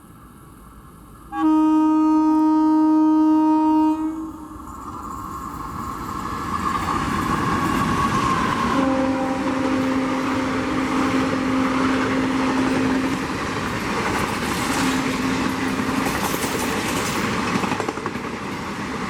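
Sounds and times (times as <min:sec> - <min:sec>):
train rumbling: 0:00.0 - 0:19.0
locomotive horn blast: 0:01.3 - 0:04.7, 0:08.7 - 0:13.6, 0:14.6 - 0:16.3.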